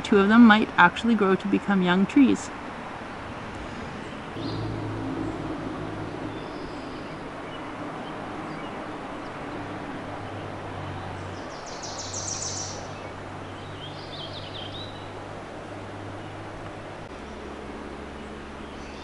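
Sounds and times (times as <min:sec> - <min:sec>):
songbird trilling: 0:11.3 - 0:15.1.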